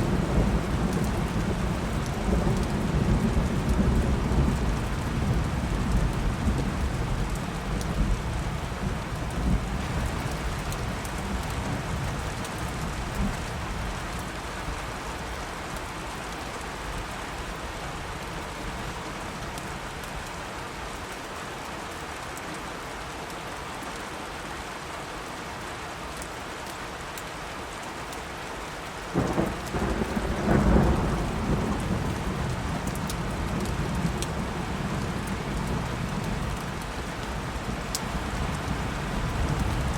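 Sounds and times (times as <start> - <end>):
steady rain: 0.0 - 39.9
thunderclap: 29.2 - 34.4
low thunder rumble: 29.2 - 39.9.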